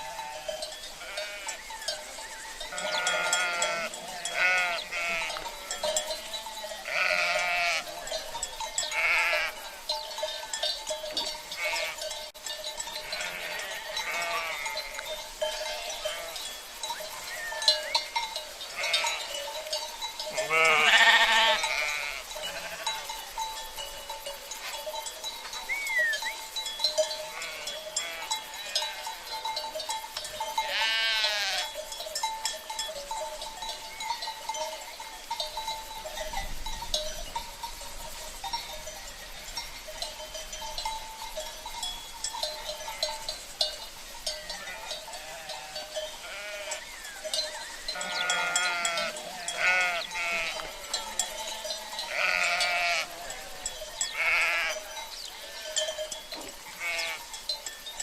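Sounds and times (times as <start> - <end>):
sheep bleating: 0.0 - 1.7, 2.7 - 5.9, 6.8 - 8.0, 8.9 - 9.8, 11.5 - 12.0, 13.0 - 15.1, 18.7 - 19.3, 20.3 - 23.1, 27.2 - 29.2, 30.6 - 31.7, 44.6 - 46.8, 47.9 - 55.8, 56.7 - 57.2
cowbells clanking: 0.0 - 58.0.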